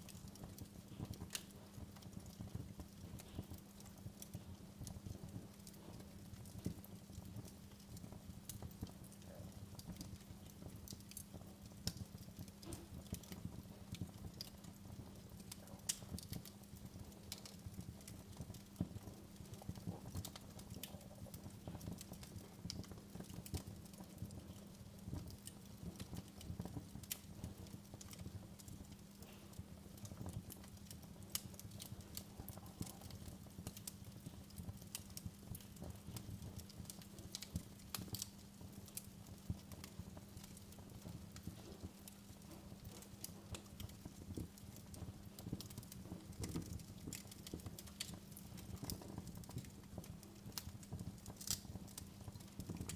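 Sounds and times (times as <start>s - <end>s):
wood fire crackling and popping: 0.0s - 52.9s.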